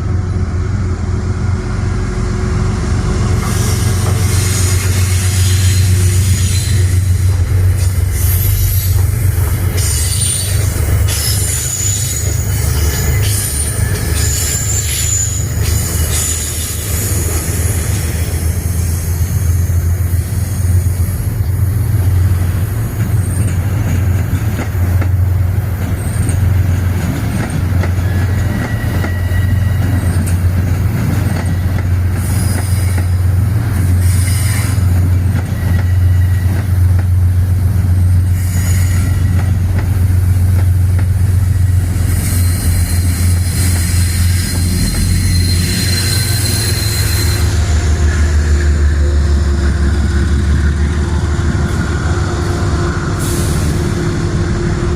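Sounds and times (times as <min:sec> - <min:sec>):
train rumbling past: 0:00.0 - 0:54.9
train wheels squealing: 0:03.4 - 0:24.0, 0:25.2 - 0:37.0, 0:38.0 - 0:39.7, 0:41.2 - 0:48.9.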